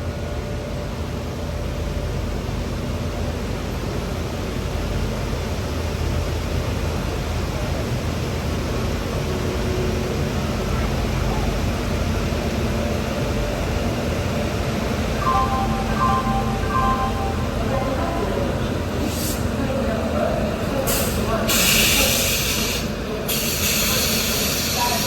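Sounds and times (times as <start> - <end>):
train rumble with hiss: 0.0 - 25.0.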